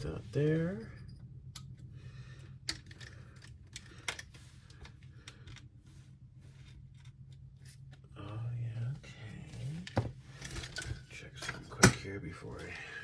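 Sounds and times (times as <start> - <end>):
steady low hum: 0.0 - 13.0
small parts clicking and tapping: 1.1 - 5.7.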